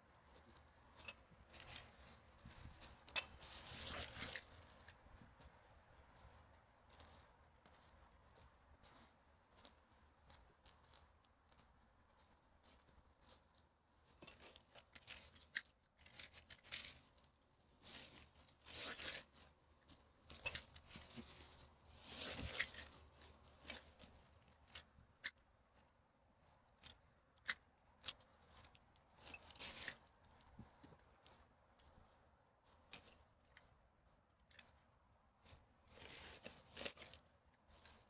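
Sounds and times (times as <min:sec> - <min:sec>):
rustling and crackling of forest debris: 0:00.0 - 0:38.0.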